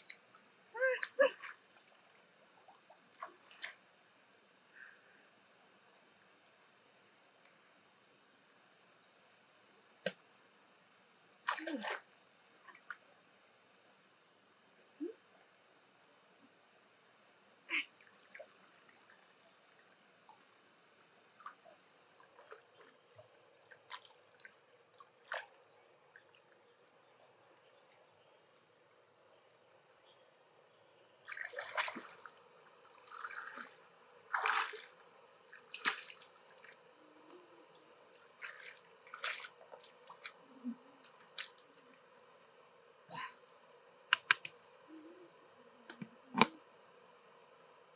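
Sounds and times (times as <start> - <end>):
wet squishing and dripping: 35.6 - 36.4, 38.3 - 40.4
sharp clicks: 44.1 - 44.6.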